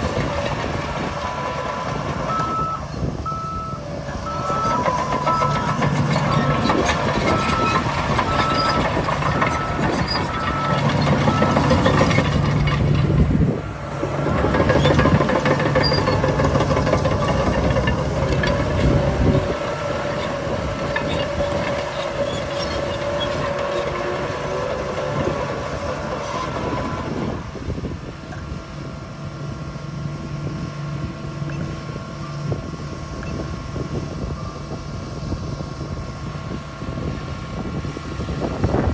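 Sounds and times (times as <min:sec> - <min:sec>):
heavy diesel machinery running: 0:00.0 - 0:38.9
reversing alarm beeping: 0:01.7 - 0:12.3
metallic clanks and rattles: 0:14.2 - 0:19.4.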